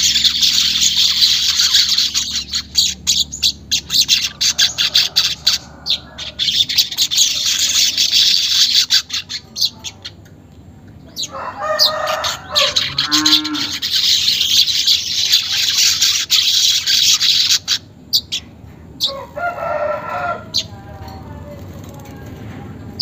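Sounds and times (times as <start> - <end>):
weaver bird chattering: 0.0 - 10.2, 11.1 - 19.1.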